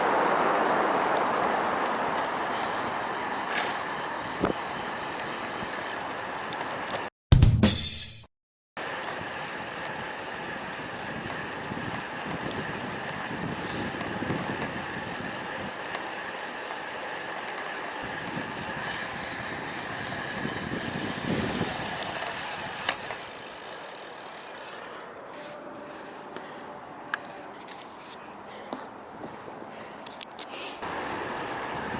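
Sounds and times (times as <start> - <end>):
bicycle tyre and road noise: 0.0 - 7.1, 8.8 - 31.9
wind gusting over microphone: 10.8 - 15.8, 18.0 - 22.9.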